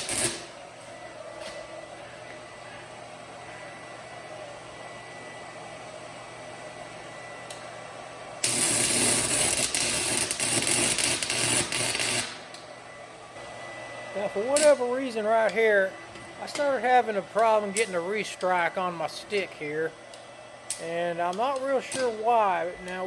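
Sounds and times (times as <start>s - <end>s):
welding arc crackling: 0.0s - 0.7s, 8.4s - 12.7s, 14.2s - 23.0s.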